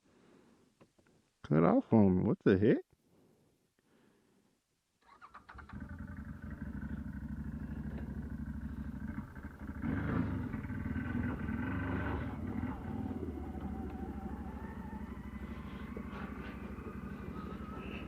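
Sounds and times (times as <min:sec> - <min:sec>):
atv engine running: 0:05.5 - 0:18.0.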